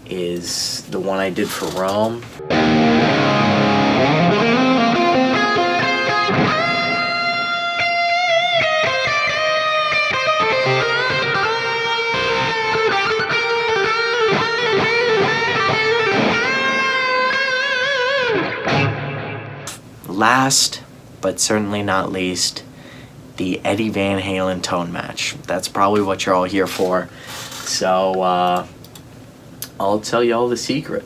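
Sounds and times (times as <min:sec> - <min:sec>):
synth-like electric guitar lead: 0:02.4 - 0:19.7.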